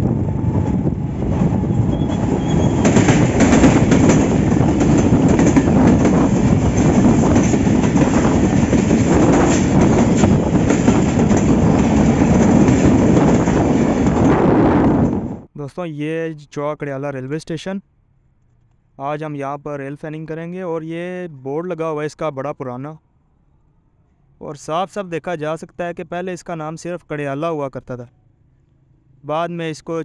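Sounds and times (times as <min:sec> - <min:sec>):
diesel train rumbling: 0:00.0 - 0:15.5
train wheels clacking over rail joints: 0:01.9 - 0:14.4.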